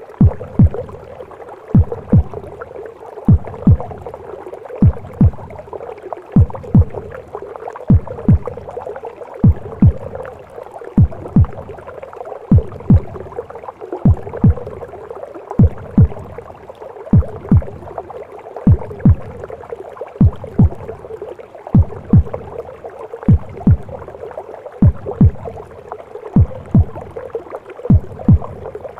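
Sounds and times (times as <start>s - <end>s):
heartbeat thumps: 0.1s - 1.1s, 1.7s - 2.6s, 3.3s - 4.2s, 4.8s - 5.6s, 6.4s - 7.2s, 7.8s - 8.8s, 9.4s - 11.8s, 12.5s - 13.4s, 14.0s - 15.0s, 15.6s - 16.5s, 17.1s - 18.1s, 18.7s - 19.6s, 20.2s - 22.6s, 23.2s - 24.2s, 24.8s - 25.8s, 26.4s - 28.9s.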